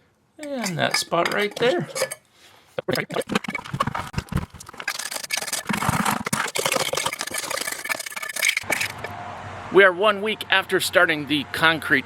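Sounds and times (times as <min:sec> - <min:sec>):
trowel scraping wet concrete: 0:00.5 - 0:02.2, 0:02.9 - 0:09.1.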